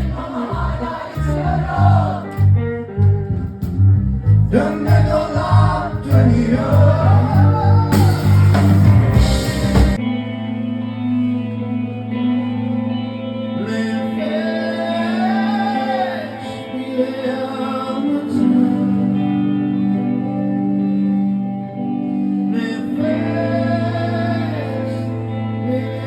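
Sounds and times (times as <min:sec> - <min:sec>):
sustained music chords: 0:00.0 - 0:13.3
person singing long notes: 0:04.5 - 0:09.4.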